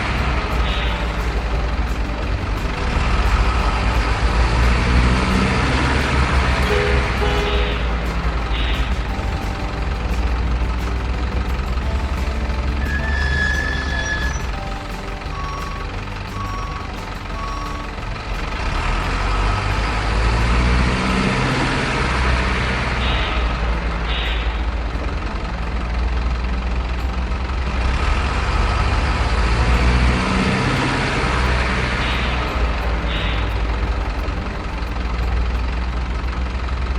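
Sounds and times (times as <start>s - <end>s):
truck diesel engine revving: 0.0s - 36.9s.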